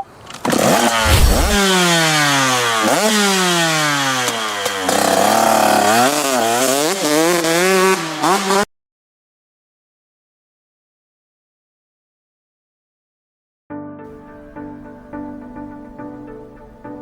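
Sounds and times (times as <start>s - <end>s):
dirt bike engine revving: 0.5s - 8.7s.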